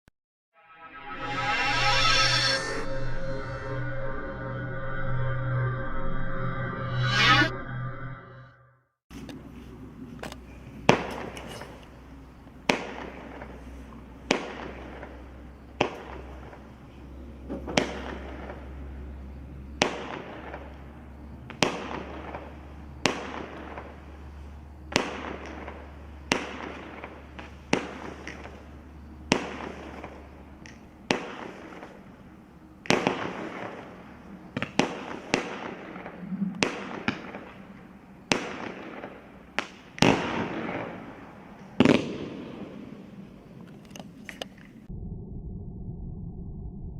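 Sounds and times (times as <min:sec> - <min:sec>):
firework bangs: 0:10.8 - 0:43.6.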